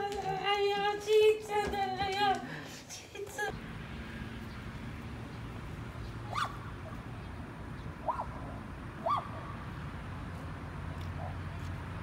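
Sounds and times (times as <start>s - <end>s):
bird calling: 4.4s - 9.6s.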